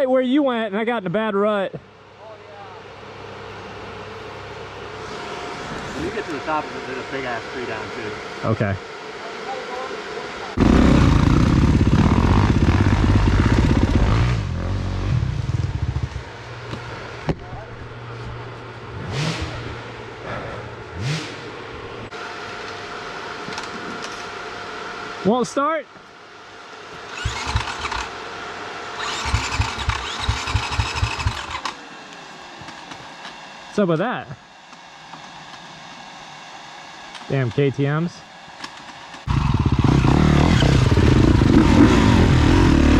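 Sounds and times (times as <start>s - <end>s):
dirt bike engine revving: 10.4s - 17.2s, 18.8s - 22.2s, 27.0s - 28.2s, 28.9s - 31.8s, 39.2s - 42.9s.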